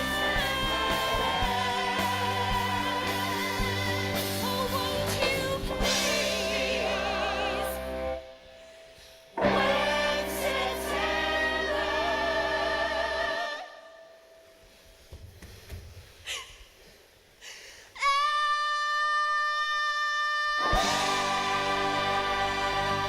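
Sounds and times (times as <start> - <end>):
voices singing with accompaniment: 0.0 - 8.5, 9.3 - 14.5, 20.6 - 23.0.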